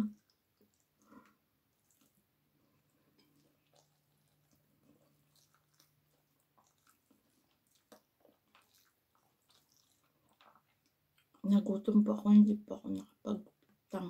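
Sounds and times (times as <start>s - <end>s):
wet chewing clicks: 0.0s - 11.4s, 12.8s - 13.9s.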